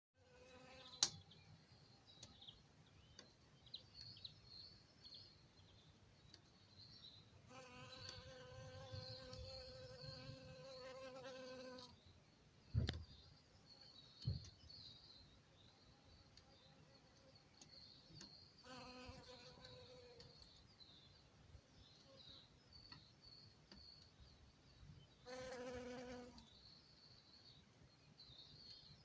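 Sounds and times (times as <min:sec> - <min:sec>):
bee buzzing: 0:25.3 - 0:26.4.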